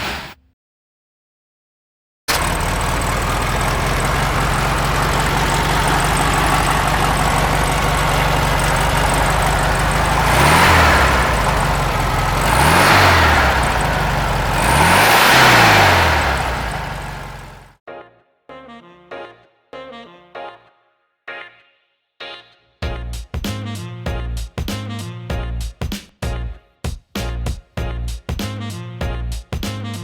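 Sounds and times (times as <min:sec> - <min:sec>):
car engine idling and revving: 0:02.3 - 0:17.7.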